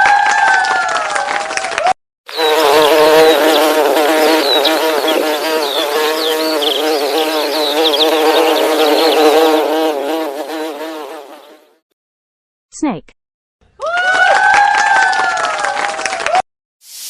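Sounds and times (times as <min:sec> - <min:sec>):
bees buzzing: 0:02.3 - 0:11.8.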